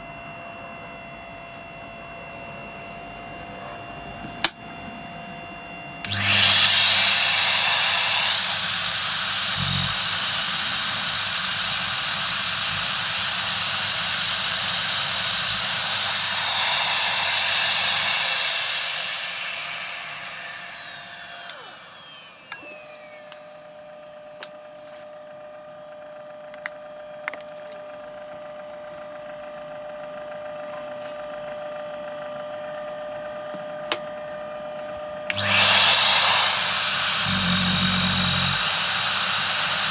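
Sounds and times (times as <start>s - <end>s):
quiet motor whine: 0.0s - 39.9s
suction motor rushing: 6.1s - 23.2s, 35.3s - 39.9s.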